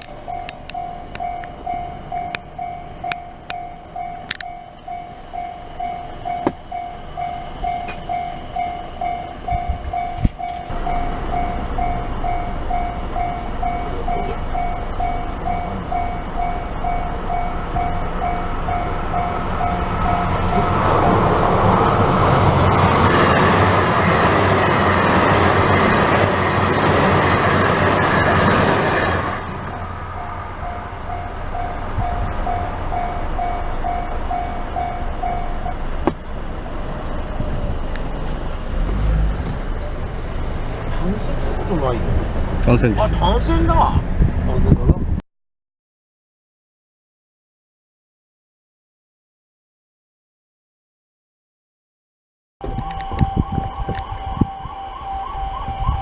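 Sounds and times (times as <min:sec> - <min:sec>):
diesel train rumble: 0:00.0 - 0:45.2
level crossing bell ringing: 0:00.1 - 0:21.0, 0:30.1 - 0:35.8.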